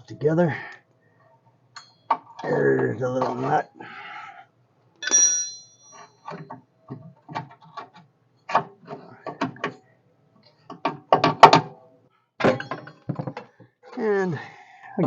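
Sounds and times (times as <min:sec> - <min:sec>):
metal part ringing: 0:01.8 - 0:02.2, 0:05.0 - 0:06.4.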